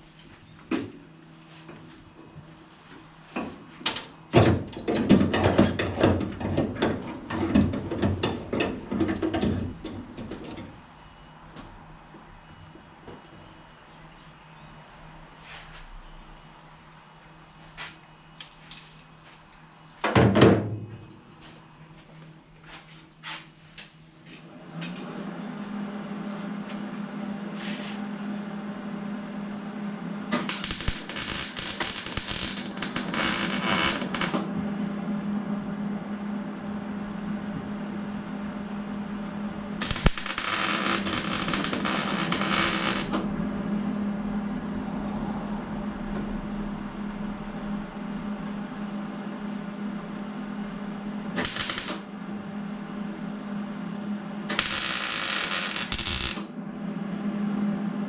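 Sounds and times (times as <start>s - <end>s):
steady low hum: 0.0s - 58.0s
electric arc welding crackling: 30.4s - 34.4s, 39.8s - 43.2s, 51.4s - 52.1s, 54.5s - 56.4s.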